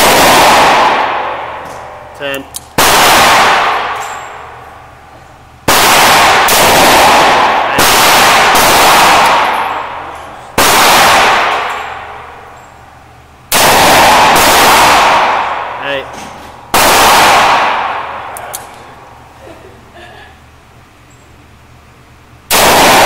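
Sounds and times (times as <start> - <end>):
revolver gunshots echoing: 0.0 - 4.9, 5.6 - 12.9, 13.5 - 18.9, 22.5 - 23.0.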